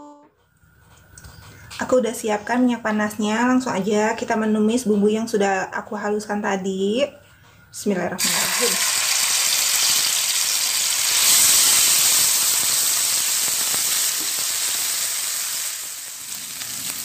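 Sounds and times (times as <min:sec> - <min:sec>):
paste sizzling in hot oil: 0:08.2 - 0:17.0.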